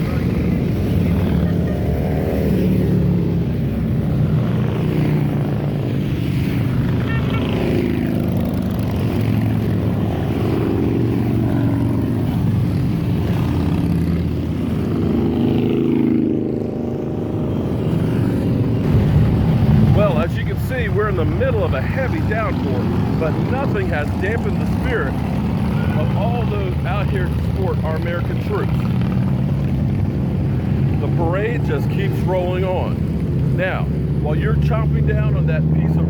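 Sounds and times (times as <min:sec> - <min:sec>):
motorcycles riding past: 0:00.0 - 0:36.0.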